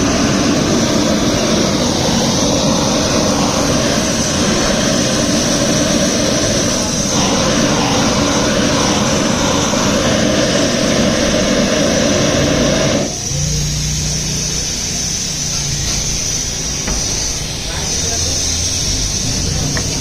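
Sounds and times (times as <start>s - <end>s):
low hum: 0.0s - 13.2s
high hiss: 0.0s - 20.0s
workshop machinery roaring: 0.0s - 20.0s.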